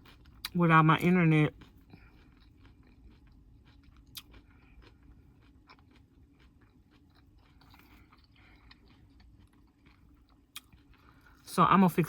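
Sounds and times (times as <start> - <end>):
chewing crunchy salad: 0.0 - 12.0
low room hum: 0.0 - 12.0.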